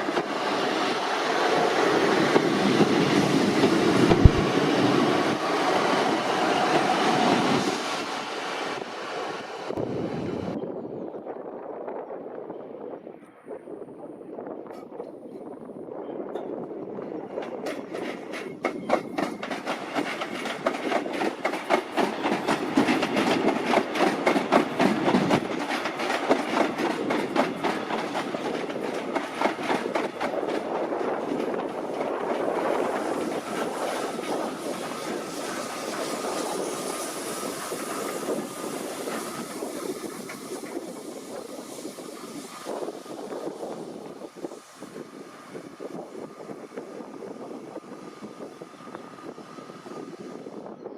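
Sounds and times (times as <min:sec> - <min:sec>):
train rushing with thin whine: 0:00.0 - 0:13.2, 0:13.8 - 0:50.9
train wheels clattering: 0:17.4 - 0:44.7.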